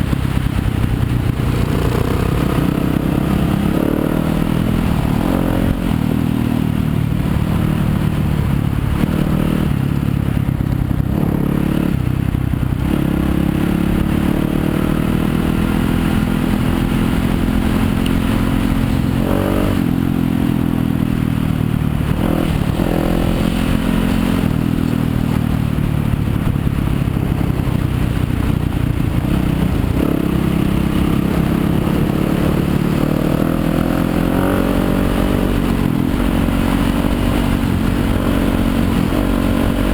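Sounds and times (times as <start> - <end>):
dirt bike engine revving: 1.3 - 6.7, 12.8 - 20.6, 22.0 - 25.4, 29.2 - 39.9.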